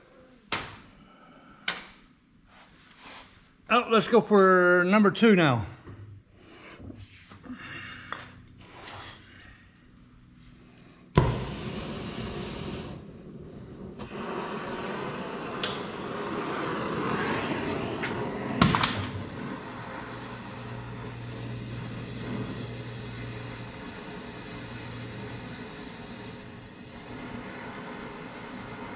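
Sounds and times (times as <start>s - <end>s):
torch lighting with a pop: 0.5s - 0.9s, 11.1s - 13.0s, 13.6s - 28.9s
torch flame hissing: 10.2s - 28.9s.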